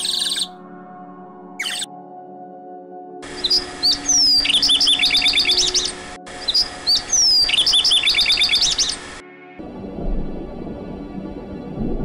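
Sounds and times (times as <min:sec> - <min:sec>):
songbird whistling: 0:00.0 - 0:00.5, 0:01.6 - 0:01.9, 0:03.2 - 0:09.2
faint background music: 0:00.0 - 0:12.0.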